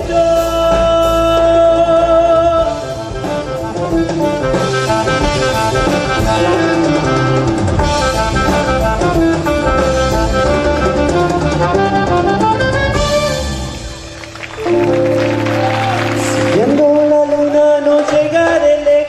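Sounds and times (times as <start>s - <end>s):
person singing: 0.0s - 3.0s, 14.6s - 19.0s
drum kit: 0.0s - 19.0s
guitar: 0.0s - 19.0s
horns playing: 3.5s - 17.8s.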